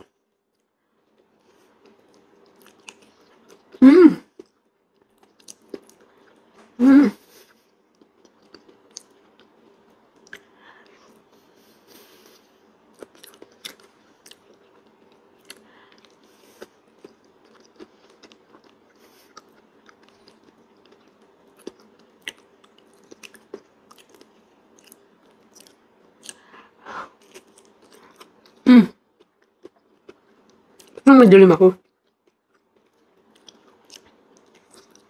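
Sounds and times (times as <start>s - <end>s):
faint steady hum: 0.0s - 35.0s
person chewing with wet smacks: 1.1s - 26.6s, 27.2s - 31.0s, 31.8s - 35.0s.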